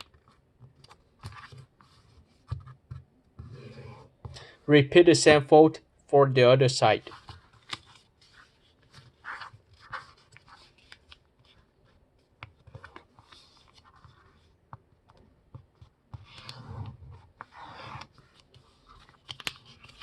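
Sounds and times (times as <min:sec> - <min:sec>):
paper rustling and crinkling: 0:07.0 - 0:14.4, 0:16.3 - 0:20.0
sharp clicks of paper creasing: 0:18.0 - 0:20.0.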